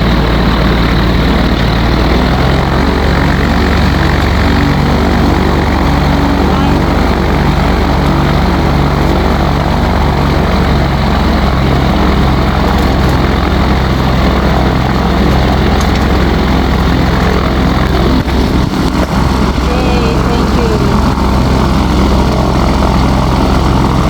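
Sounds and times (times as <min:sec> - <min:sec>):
light aircraft engine droning: 0:00.0 - 0:24.0.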